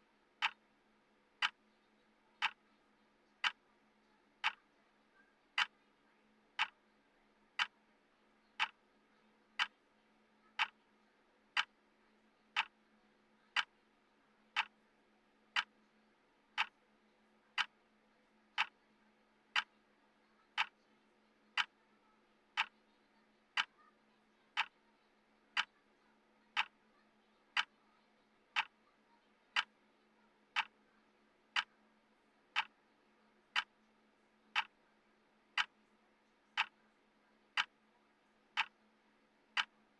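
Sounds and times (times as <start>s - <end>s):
clock ticking: 0.4s - 0.7s, 1.4s - 1.6s, 2.4s - 2.6s, 3.4s - 3.6s, 4.4s - 4.7s, 5.5s - 5.8s, 6.6s - 6.8s, 7.6s - 7.8s, 8.5s - 8.8s, 9.6s - 9.8s, 10.5s - 10.8s, 11.5s - 11.8s, 12.5s - 12.8s, 13.5s - 13.8s, 14.5s - 14.8s, 15.5s - 15.7s, 16.6s - 16.8s, 17.5s - 17.8s, 18.6s - 18.8s, 19.5s - 19.7s, 20.5s - 20.8s, 21.5s - 21.8s, 22.5s - 22.9s, 23.5s - 23.8s, 24.5s - 24.8s, 25.5s - 25.8s, 26.5s - 26.8s, 27.5s - 27.8s, 28.5s - 28.9s, 29.5s - 29.8s, 30.5s - 30.8s, 31.5s - 31.9s, 32.5s - 32.8s, 33.5s - 33.8s, 34.5s - 34.8s, 35.5s - 35.8s, 36.6s - 36.8s, 37.5s - 37.9s, 38.5s - 39.9s.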